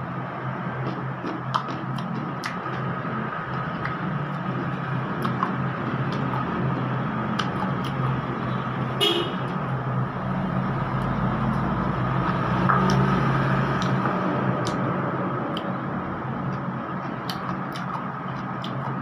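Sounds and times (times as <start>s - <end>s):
vehicle engine running: 0.0s - 19.0s
short horn toot: 9.0s - 9.4s.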